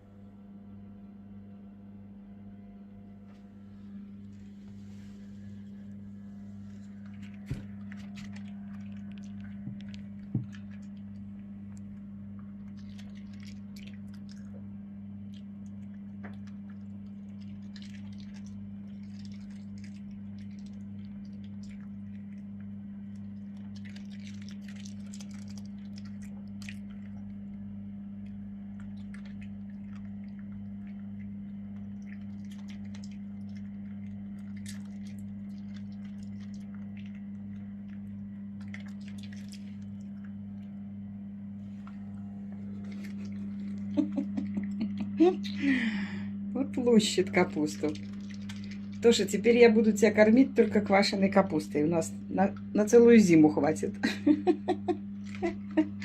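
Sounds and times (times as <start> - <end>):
low electrical hum: 0.0 - 56.0
small crunches and crackles: 4.1 - 14.6, 15.2 - 40.8, 41.6 - 45.6, 47.7 - 49.6
dog chewing cabbage leaves: 5.0 - 40.6, 41.7 - 45.5, 46.8 - 51.2.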